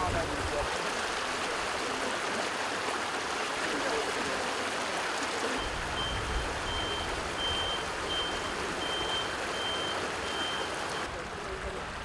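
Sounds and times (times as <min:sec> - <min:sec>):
water rushing: 0:00.0 - 0:12.0
reversing alarm beeping: 0:05.6 - 0:11.1.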